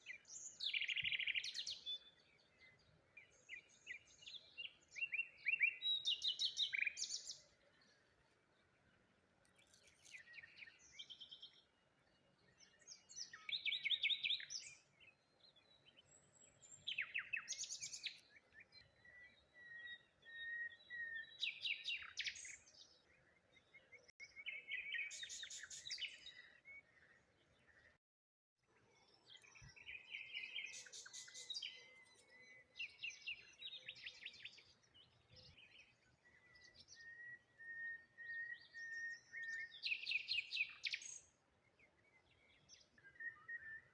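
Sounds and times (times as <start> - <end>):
songbirds chirping: 0.0 - 28.0, 28.6 - 43.9.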